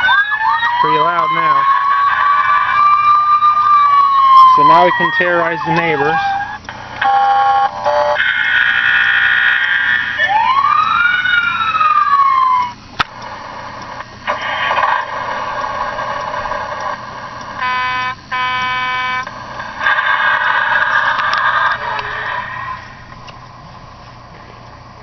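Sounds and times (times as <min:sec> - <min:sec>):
siren wail: 0:00.0 - 0:12.9, 0:14.2 - 0:23.2
short horn blasts: 0:17.6 - 0:19.3
steady horn-like tone: 0:17.6 - 0:19.3.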